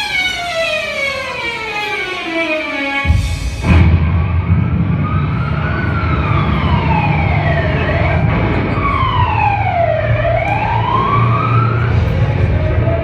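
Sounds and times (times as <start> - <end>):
siren wailing: 0.0 - 13.0
steady low rumble: 3.1 - 13.0.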